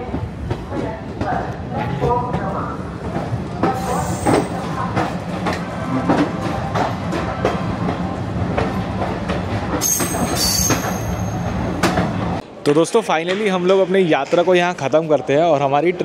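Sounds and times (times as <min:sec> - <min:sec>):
low train rumble: 0:00.0 - 0:12.4
high metallic squeal: 0:09.8 - 0:11.4.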